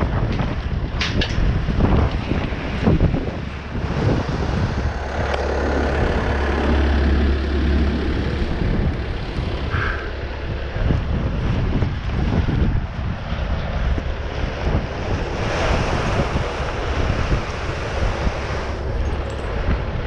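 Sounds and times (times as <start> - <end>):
vehicle engine rumbling: 0.8 - 14.7, 18.6 - 20.0.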